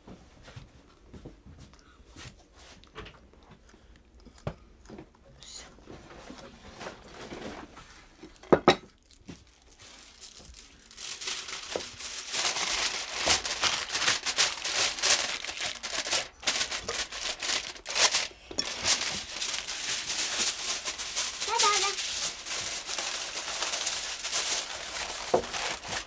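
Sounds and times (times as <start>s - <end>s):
aluminium foil crinkling and tearing: 6.8s - 26.0s.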